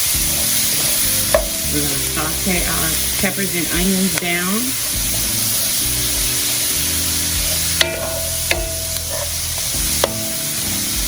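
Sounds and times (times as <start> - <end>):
vegetables sizzling in butter: 0.0 - 11.0
utensil clinking on pot: 0.3 - 4.9, 7.2 - 11.0.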